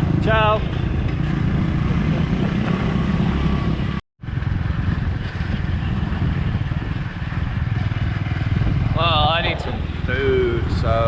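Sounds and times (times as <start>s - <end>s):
motorbike engine running: 0.0s - 10.9s
wind and road noise: 0.0s - 11.0s.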